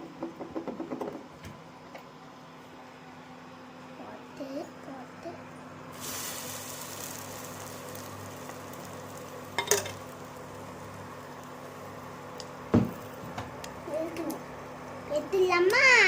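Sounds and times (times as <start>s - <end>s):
bread sizzling in a pan: 5.9s - 14.1s.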